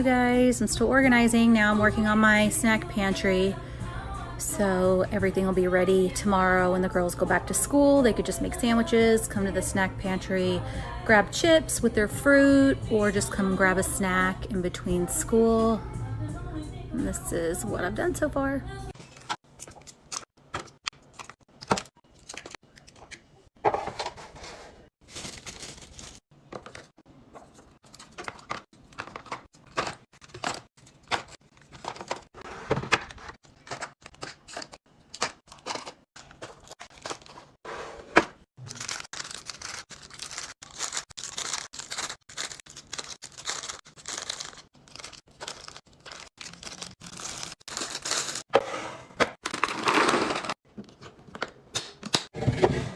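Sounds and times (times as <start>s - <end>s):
plastic packaging crinkling: 25.0s - 26.9s, 38.6s - 48.5s.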